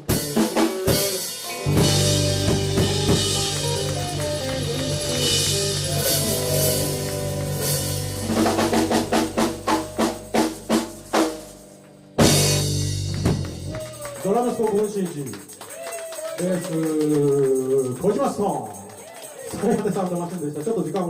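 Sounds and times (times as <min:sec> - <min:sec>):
quick drum hits: 0:00.0 - 0:14.0
rock band playing: 0:00.0 - 0:15.6.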